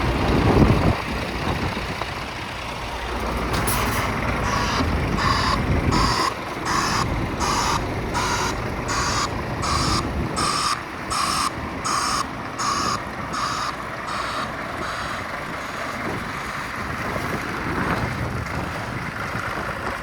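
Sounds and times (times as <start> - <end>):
truck engine running low: 0.0 - 20.0
reversing alarm beeping: 3.8 - 16.0.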